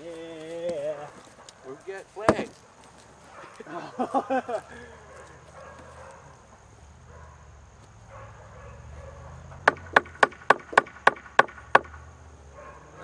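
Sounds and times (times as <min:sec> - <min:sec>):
hammer striking nail into wood: 0:09.6 - 0:12.1.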